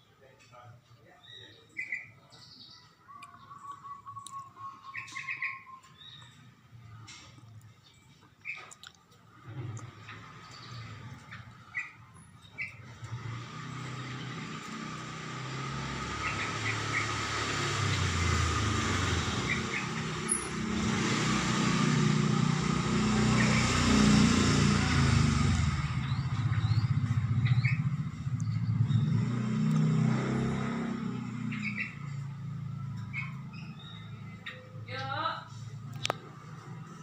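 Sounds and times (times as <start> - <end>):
bird chirps: 1.0 - 9.0, 10.4 - 13.0, 15.8 - 20.7, 25.6 - 35.3
vehicle engine running: 9.7 - 37.0.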